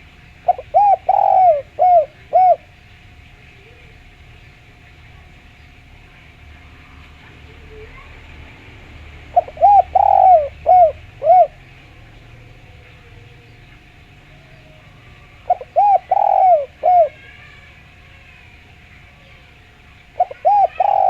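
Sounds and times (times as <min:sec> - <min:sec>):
dove cooing: 0:00.0 - 0:02.8, 0:09.2 - 0:21.0.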